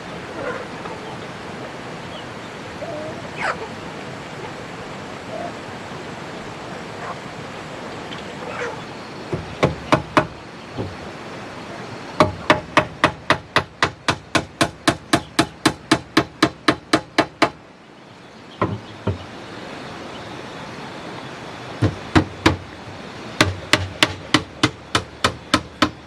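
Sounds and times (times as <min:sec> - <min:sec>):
hammer striking wood: 0:09.3 - 0:11.0, 0:12.2 - 0:17.6, 0:18.6 - 0:19.2, 0:21.8 - 0:22.6, 0:23.4 - 0:26.0.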